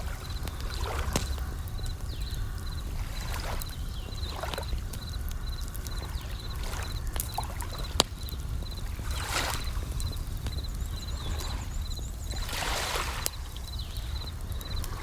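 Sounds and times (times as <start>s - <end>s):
sharp fire pop: 0.0s - 2.8s
crackling campfire: 0.0s - 15.0s
crickets chirping in high trills: 0.0s - 15.0s
waves washing in: 6.0s - 10.5s, 12.3s - 13.6s.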